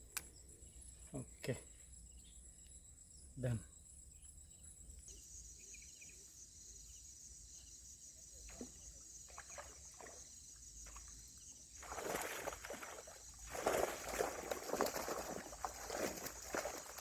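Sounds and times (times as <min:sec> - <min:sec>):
insects trilling: 0:00.0 - 0:17.0
water splashing and rustling: 0:08.4 - 0:17.0.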